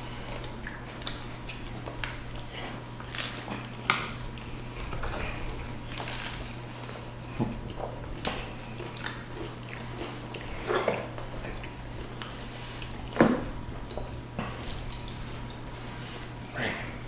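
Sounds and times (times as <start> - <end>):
crunchy biting and chewing: 0.2 - 13.2.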